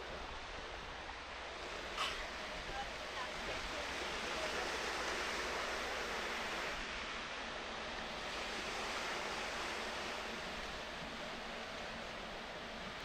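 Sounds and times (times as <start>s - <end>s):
sea waves washing on shore: 0.0s - 13.0s.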